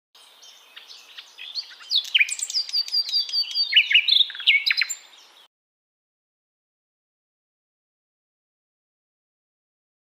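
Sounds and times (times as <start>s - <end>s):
songbird singing: 0.2s - 5.5s.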